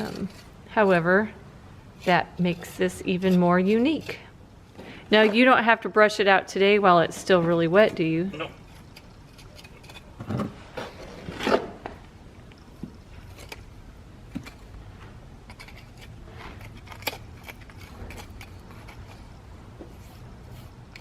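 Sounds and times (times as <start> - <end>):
low steady hum: 0.0 - 21.0
light scrapes and clicks: 8.6 - 11.7, 15.5 - 21.0.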